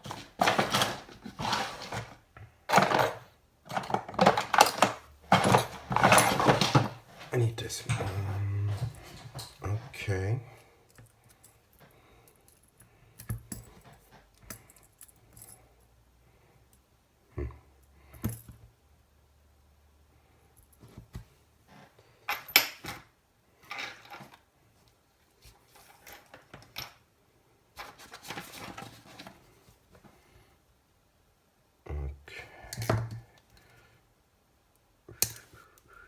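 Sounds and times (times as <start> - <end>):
small metal parts clinking: 2.7 - 7.0, 10.9 - 15.9.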